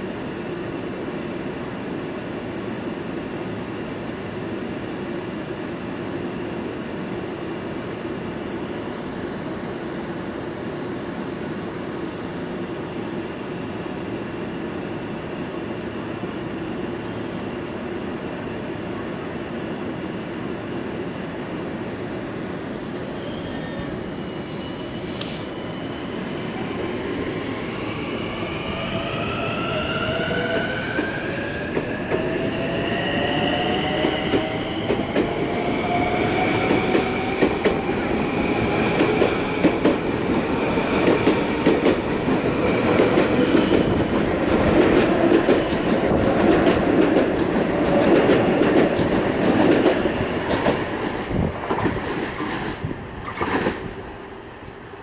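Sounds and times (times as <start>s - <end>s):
train rumble: 24.6s - 54.1s.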